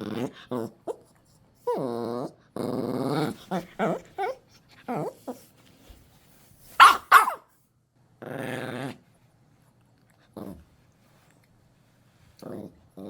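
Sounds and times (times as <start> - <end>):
dog growling: 0.0 - 1.0, 1.6 - 5.4, 8.2 - 9.0, 10.3 - 10.7, 12.4 - 13.0
dog barking: 6.8 - 7.5.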